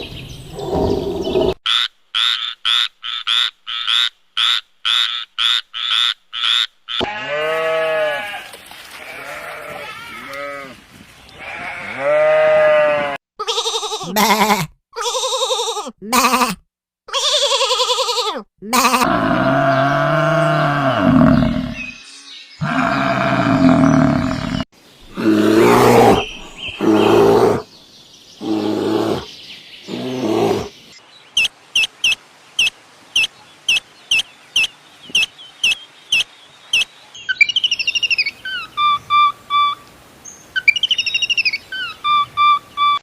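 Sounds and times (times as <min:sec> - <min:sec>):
bird chirping: 0:00.0 - 0:01.6, 0:19.7 - 0:43.0
sheep bleating: 0:07.0 - 0:10.8, 0:11.4 - 0:16.5
whistled bird calls: 0:31.4 - 0:43.0.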